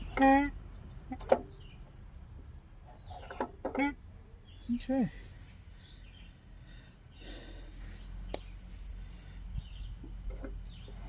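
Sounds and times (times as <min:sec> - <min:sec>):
low background hum: 0:00.0 - 0:11.0
faint bird chirps: 0:02.8 - 0:11.0.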